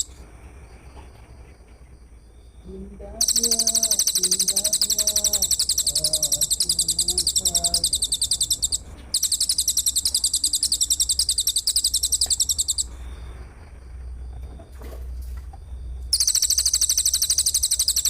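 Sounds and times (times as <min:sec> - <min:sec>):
shrill rapid pulsed bird trill: 0:03.1 - 0:13.0, 0:16.1 - 0:18.0.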